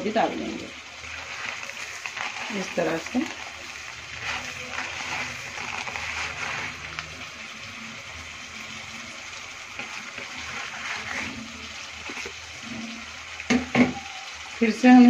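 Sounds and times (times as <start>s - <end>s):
chicken sizzling in a wok: 0.0s - 15.0s
fried onions tipped in: 1.1s - 7.4s.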